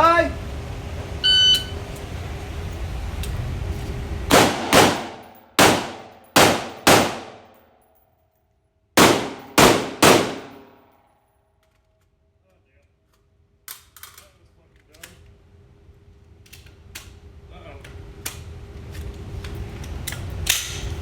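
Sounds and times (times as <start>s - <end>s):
shot timer beep: 1.2s - 1.8s
rifle shots ringing indoors: 4.3s - 7.9s, 9.0s - 11.0s.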